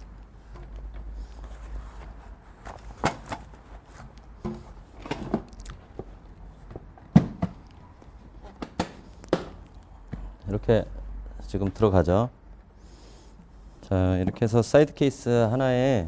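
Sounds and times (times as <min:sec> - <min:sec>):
camping gear knocking and rustling: 0:02.0 - 0:10.3.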